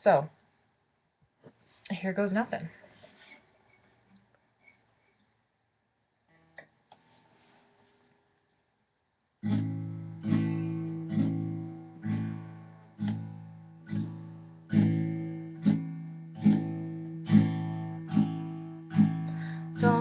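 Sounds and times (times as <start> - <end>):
guitar chords strummed: 9.4 - 20.0.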